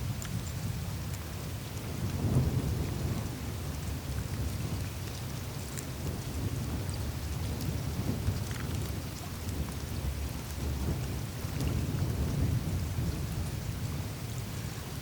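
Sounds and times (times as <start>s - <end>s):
meltwater running in channels: 0.0s - 15.0s
ice ticking and crackling: 7.0s - 9.8s.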